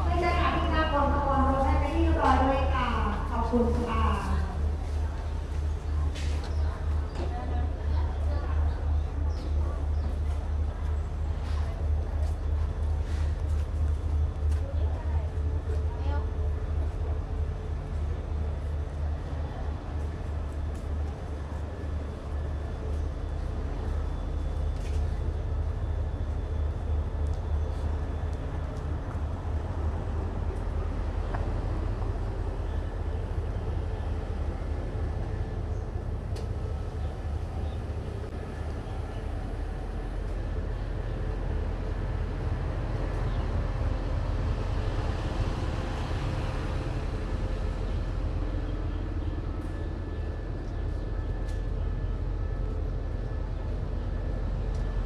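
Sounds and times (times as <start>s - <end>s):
diesel train engine rumbling: 0.0s - 55.0s.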